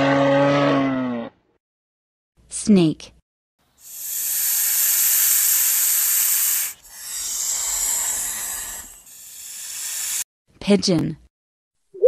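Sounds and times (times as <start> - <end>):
snake hissing: 3.8 - 10.3.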